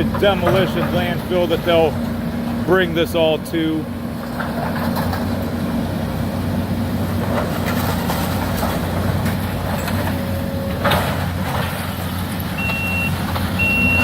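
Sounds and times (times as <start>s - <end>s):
excavator diesel engine running: 0.0s - 14.0s
debris clanking: 7.1s - 13.5s
reversing alarm beeping: 12.6s - 14.0s.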